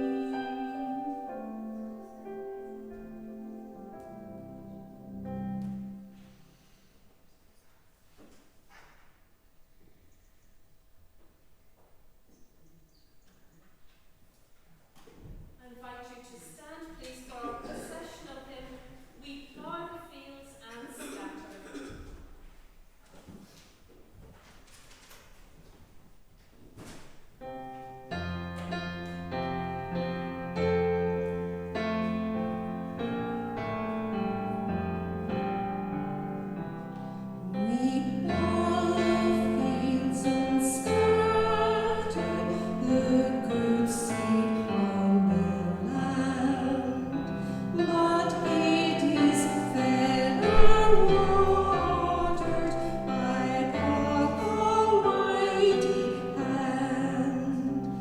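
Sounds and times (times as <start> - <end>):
person singing: 0.0 - 1.9, 37.4 - 58.0
instrumental held chords: 0.0 - 6.4.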